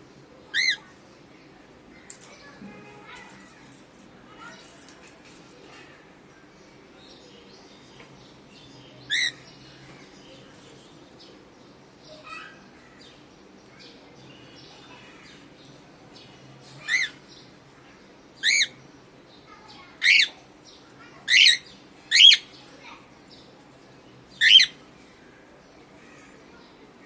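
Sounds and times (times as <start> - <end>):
cockatiel chirping and squawking: 21.3 - 22.4, 24.4 - 24.7.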